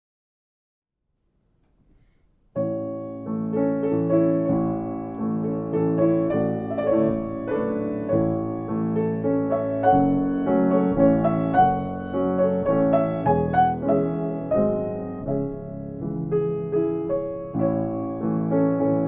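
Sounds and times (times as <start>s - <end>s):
piano playing: 2.5s - 19.0s.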